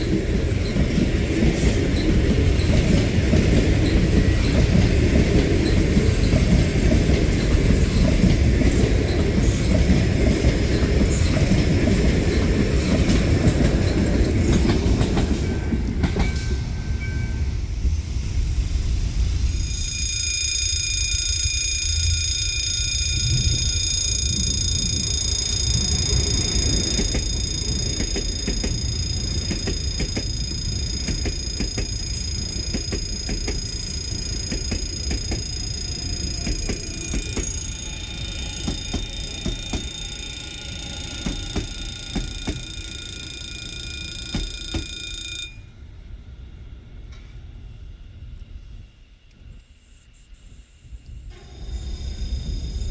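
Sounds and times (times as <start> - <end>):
electric train rumbling past: 0.0 - 49.7, 50.5 - 52.9
high-pitched ringing tone: 19.3 - 45.8, 49.7 - 52.9
wheels clicking over rail joints: 21.2 - 45.5.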